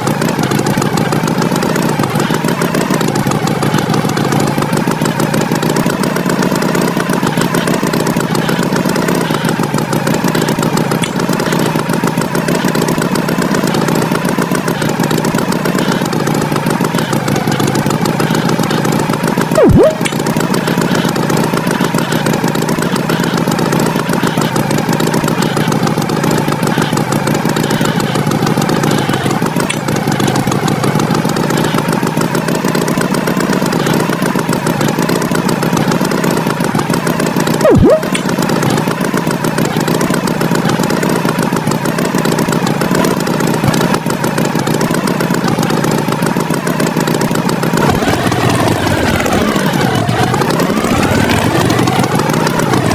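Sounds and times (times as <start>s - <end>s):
tractor engine running: 0.0s - 52.9s
sharp loud blip: 37.6s - 38.2s.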